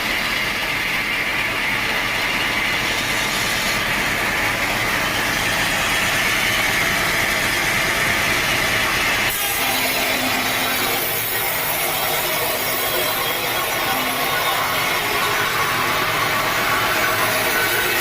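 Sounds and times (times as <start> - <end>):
sawmill saw cutting log: 9.3 - 18.0.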